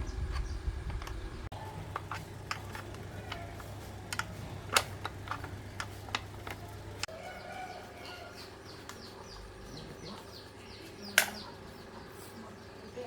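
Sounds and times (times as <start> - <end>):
bird chirping: 0.0 - 1.9, 5.4 - 13.0
low hum: 0.0 - 7.1.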